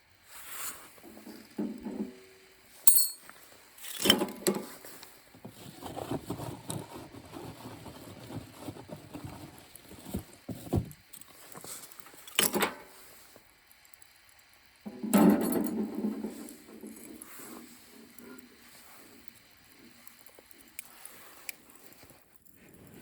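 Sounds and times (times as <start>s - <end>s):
sharp metallic clink: 2.9s - 3.3s
rustling and shuffling: 3.0s - 12.3s.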